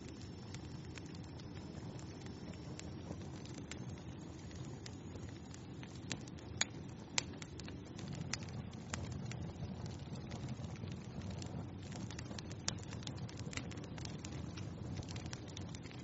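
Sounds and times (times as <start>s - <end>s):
fire crackles and pops: 0.0s - 16.0s
wood fire hissing: 0.0s - 16.0s.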